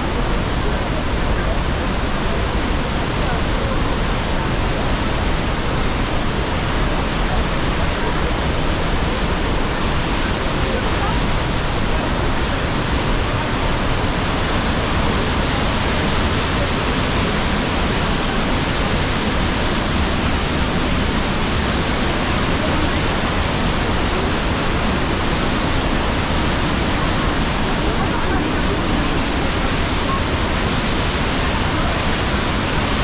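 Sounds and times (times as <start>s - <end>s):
large waterfall rushing: 0.0s - 33.0s.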